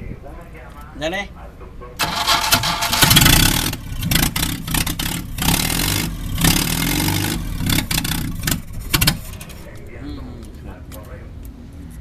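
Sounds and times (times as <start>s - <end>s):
engine running rough and sputtering: 2.0s - 10.0s.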